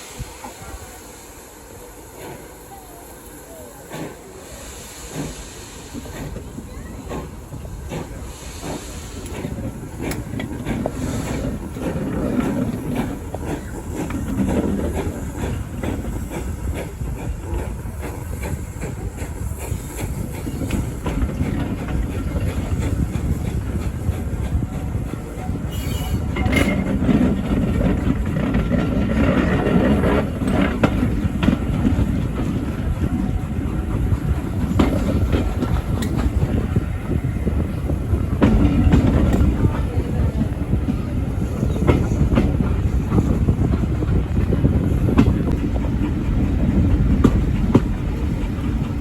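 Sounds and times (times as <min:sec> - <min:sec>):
train carriage rumble: 0:00.0 - 0:49.0
wheels clicking over rail joints: 0:06.0 - 0:36.8.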